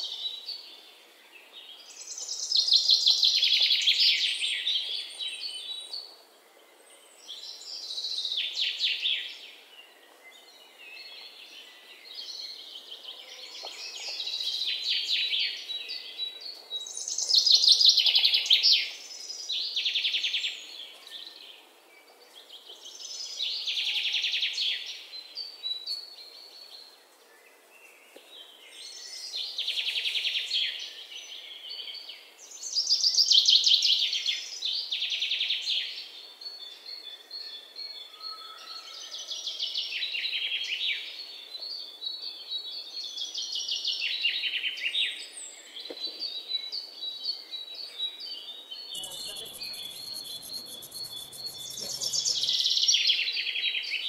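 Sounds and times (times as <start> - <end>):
small birds raspy chatter: 48.9 - 52.8.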